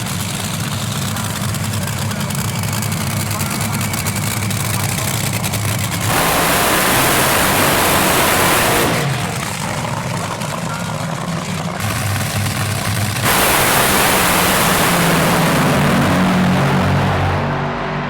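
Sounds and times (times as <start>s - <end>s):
drag racing car engines: 0.0s - 18.0s
loud rushing noise: 6.0s - 9.8s, 11.8s - 18.0s.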